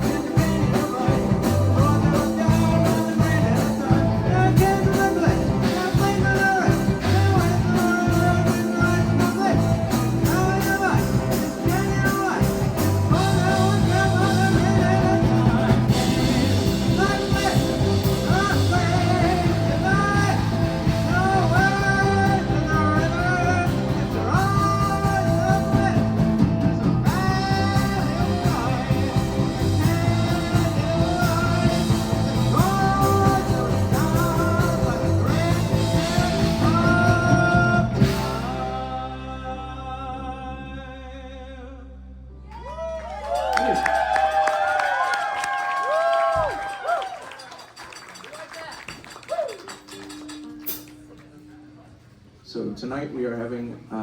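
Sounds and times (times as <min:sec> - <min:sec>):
drums: 0:00.0 - 0:39.8, 0:43.3 - 0:51.3
person singing: 0:00.0 - 0:43.0
electric guitar: 0:00.0 - 0:44.4.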